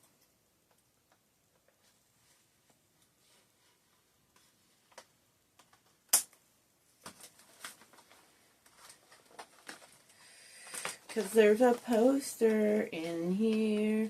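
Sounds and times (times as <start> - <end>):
packaging clicks and crinkles: 7.0 - 12.5
packaging crackling: 7.1 - 12.2
packaging snapping: 10.6 - 11.4.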